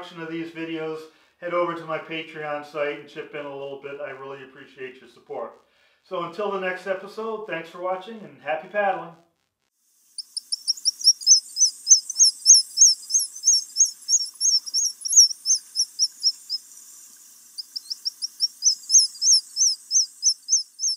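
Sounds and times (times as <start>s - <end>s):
high thin bird chirps: 10.1s - 20.9s.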